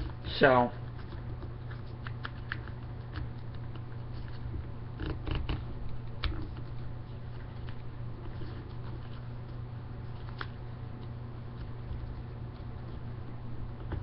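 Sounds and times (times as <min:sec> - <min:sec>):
steady low hum: 0:00.0 - 0:14.0
paper rustling and creasing: 0:06.2 - 0:13.0.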